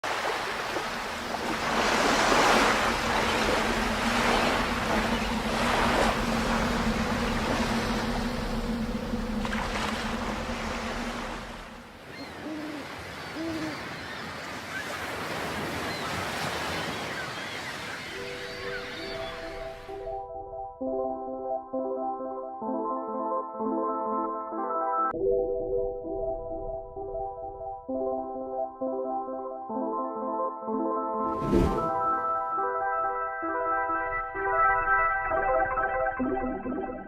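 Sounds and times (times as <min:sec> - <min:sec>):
waves breaking: 0:00.0 - 0:20.1, 0:31.3 - 0:32.4
low hum: 0:00.4 - 0:12.1.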